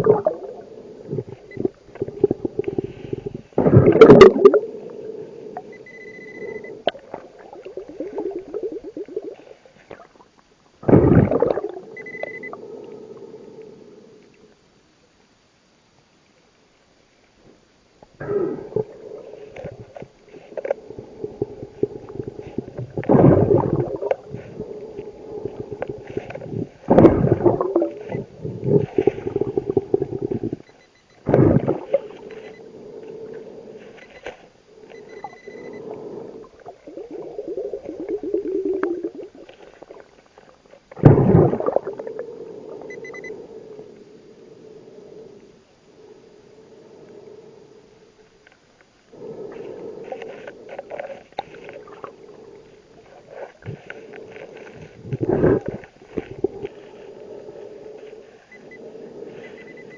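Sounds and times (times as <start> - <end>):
exhaled bubbles bursting: 0.0 - 4.7, 6.3 - 10.2, 10.8 - 12.6, 20.9 - 30.6, 31.2 - 32.5, 34.9 - 43.3, 49.2 - 56.9
steady bubbling rumble: 0.0 - 14.3, 18.1 - 48.4, 49.0 - 59.9.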